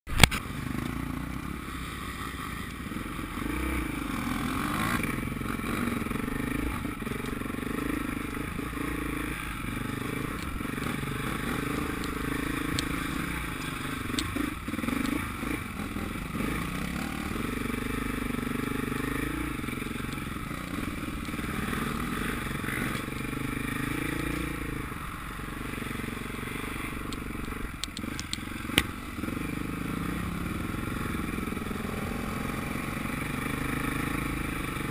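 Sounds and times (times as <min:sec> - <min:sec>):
dirt bike engine revving: 0:00.3 - 0:34.9
sharp clicks: 0:27.0 - 0:28.9.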